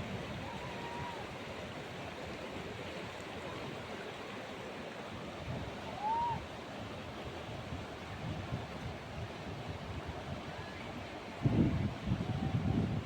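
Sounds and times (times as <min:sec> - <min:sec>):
rushing river rapids: 0:00.0 - 0:08.1.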